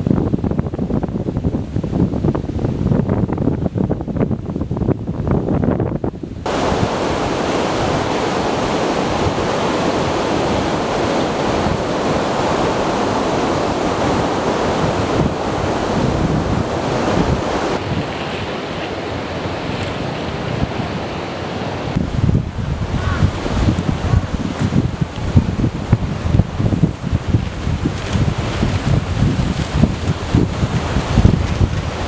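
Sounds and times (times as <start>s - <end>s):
wind buffeting microphone: 0.0s - 32.0s
heavy surf breaking: 6.4s - 32.0s.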